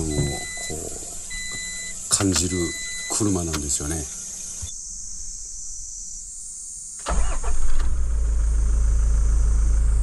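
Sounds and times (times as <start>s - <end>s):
diesel engine starting and idling: 7.0s - 10.0s.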